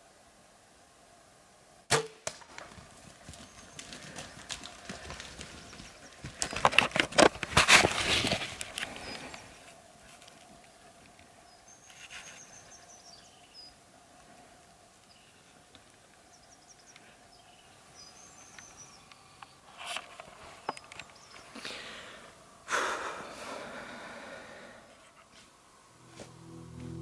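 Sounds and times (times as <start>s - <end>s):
rustles and clicks: 2.3s - 12.6s
bird chirping: 3.2s - 6.7s, 8.8s - 9.6s, 11.4s - 13.8s, 16.2s - 19.7s, 20.5s - 21.8s.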